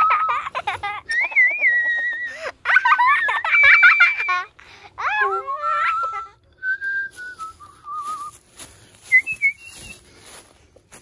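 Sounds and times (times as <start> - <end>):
person whistling: 6.6 - 8.4, 9.0 - 10.0.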